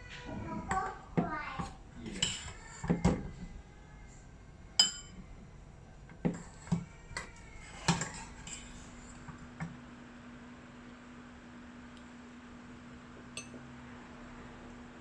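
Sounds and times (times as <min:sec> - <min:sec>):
dishes and utensils clinking: 0:02.1 - 0:03.2, 0:04.8 - 0:05.2.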